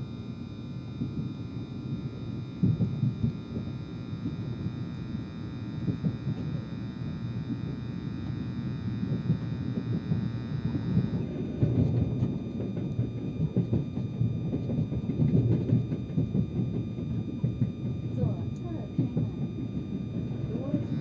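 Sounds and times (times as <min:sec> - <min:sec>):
steady electrical hum: 0:00.0 - 0:21.0
train wheels rumbling on rails: 0:09.8 - 0:21.0.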